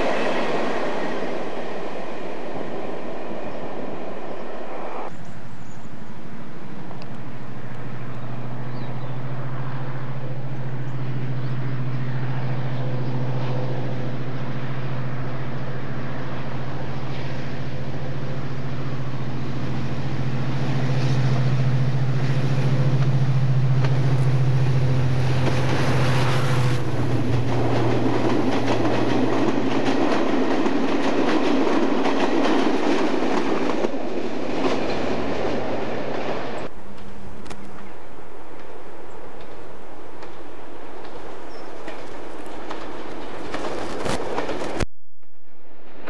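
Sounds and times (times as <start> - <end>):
diesel locomotive passing: 0.0 - 46.0
train wheels clattering: 20.9 - 37.1.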